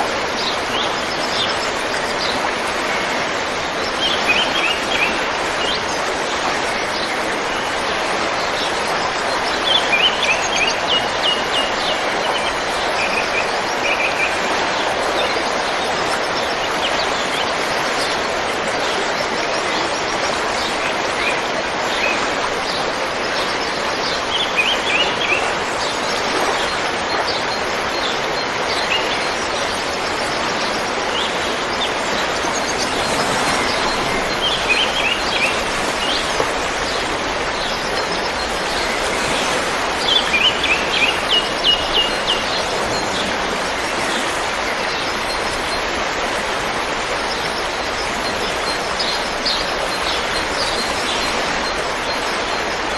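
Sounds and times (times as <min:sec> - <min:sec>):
river rushing: 0:00.0 - 0:52.9
small birds chirping: 0:23.5 - 0:45.8.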